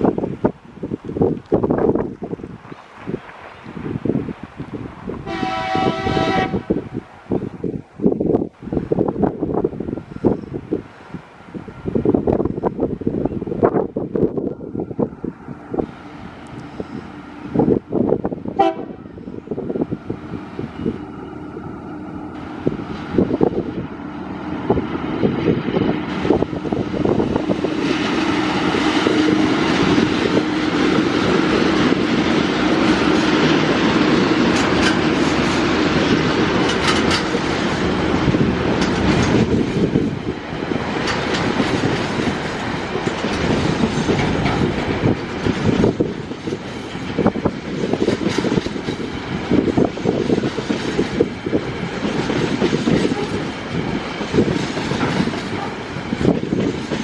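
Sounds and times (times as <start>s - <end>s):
diesel locomotive engine drone: 0.0s - 57.0s
train wheels clacking on rail joints: 15.6s - 57.0s.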